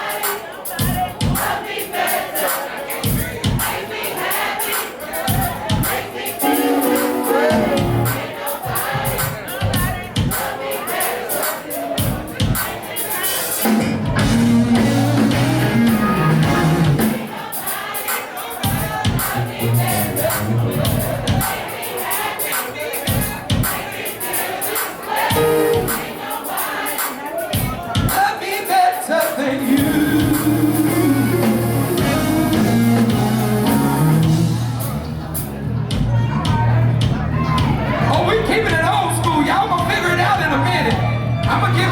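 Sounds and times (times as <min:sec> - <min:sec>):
drum kit: 0:00.0 - 0:41.9
live band playing: 0:00.0 - 0:41.9
person singing: 0:05.2 - 0:10.0, 0:25.2 - 0:34.6
bass guitar: 0:06.9 - 0:08.2, 0:13.7 - 0:17.2, 0:19.3 - 0:21.4, 0:29.8 - 0:41.9.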